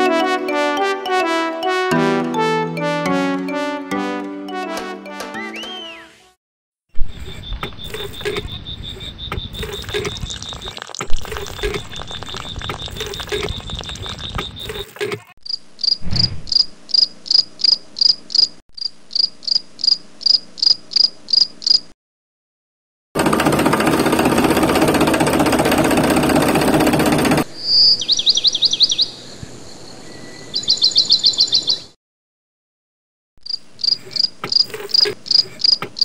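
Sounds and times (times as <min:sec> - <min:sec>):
water pouring into steel pot: 0:09.6 - 0:14.9
loud insect chirps: 0:15.5 - 0:21.9, 0:33.5 - 0:36.0.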